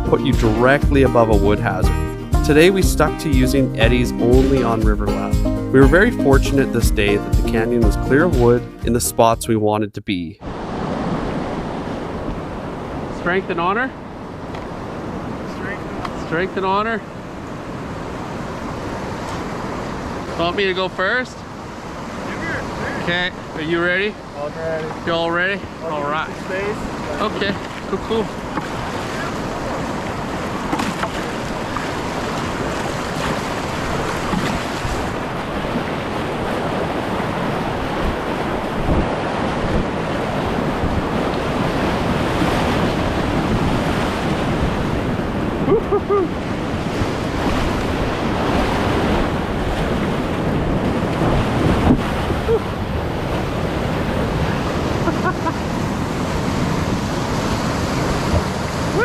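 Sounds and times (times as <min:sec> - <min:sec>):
whitewater rapids rushing: 0:24.9 - 0:59.0
wind buffeting microphone: 0:26.7 - 0:59.0.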